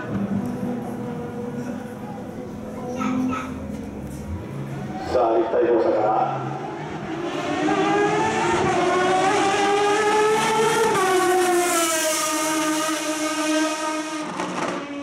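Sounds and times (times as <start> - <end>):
racing engine revving high: 6.2 - 15.0.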